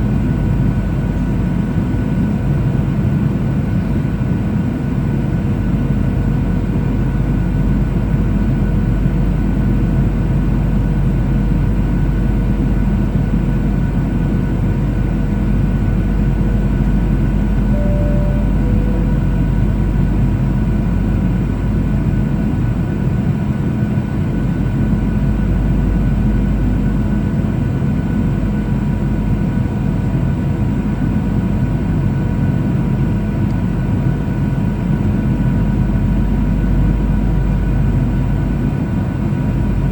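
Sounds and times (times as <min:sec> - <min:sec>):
airplane engines rumbling: 0:12.7 - 0:21.4
faint whining tones: 0:17.5 - 0:20.2.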